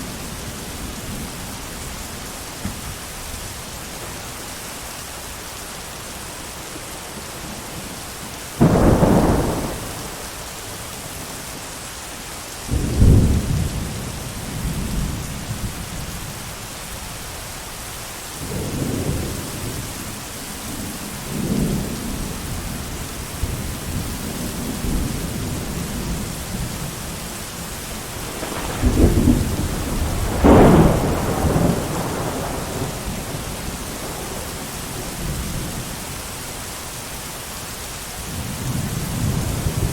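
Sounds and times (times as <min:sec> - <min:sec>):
heavy rain: 0:00.0 - 0:39.9
thunder claps and rumbles: 0:08.6 - 0:10.8, 0:12.7 - 0:16.3, 0:28.0 - 0:36.0, 0:38.3 - 0:39.9.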